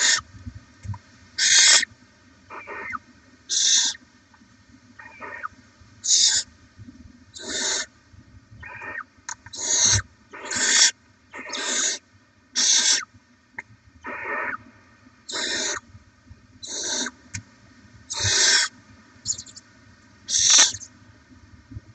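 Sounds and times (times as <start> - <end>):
owl chicks hissing: 0.0 - 0.2, 1.4 - 1.9, 2.5 - 4.0, 5.0 - 6.5, 7.4 - 7.9, 8.6 - 12.0, 12.6 - 13.1, 14.0 - 14.6, 15.3 - 15.8, 16.6 - 17.2, 18.1 - 19.6, 20.3 - 20.9.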